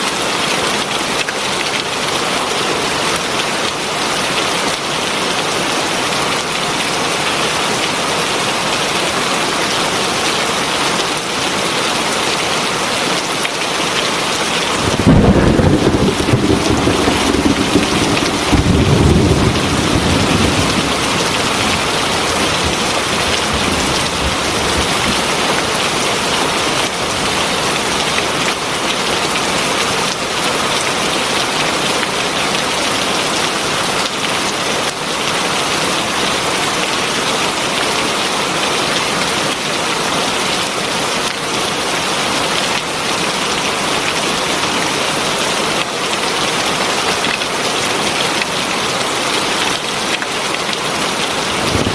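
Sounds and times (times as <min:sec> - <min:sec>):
heavy rain: 0:00.0 - 0:51.9
thunder rumble: 0:14.6 - 0:25.4, 0:51.4 - 0:51.9.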